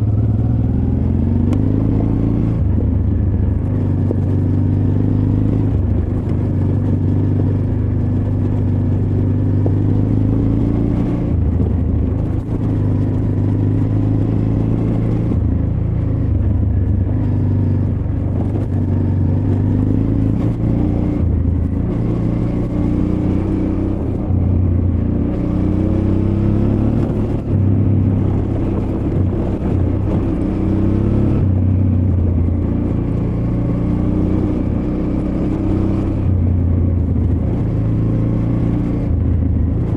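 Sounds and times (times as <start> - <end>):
motorcycle engine revving off-road: 0.0 - 39.9.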